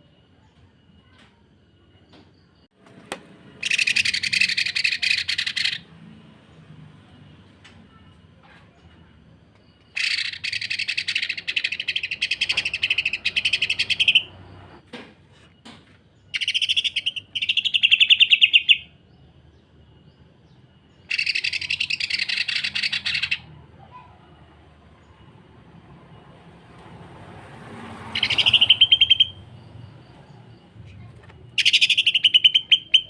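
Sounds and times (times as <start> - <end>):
bird rattling call: 9.9 - 14.3, 21.1 - 23.5, 28.1 - 29.4, 31.6 - 33.0.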